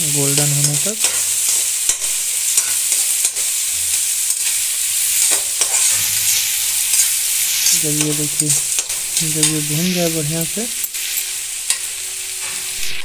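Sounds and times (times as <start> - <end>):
vegetables sizzling in hot oil: 0.0 - 13.0
spatula scraping the pan: 2.6 - 7.3.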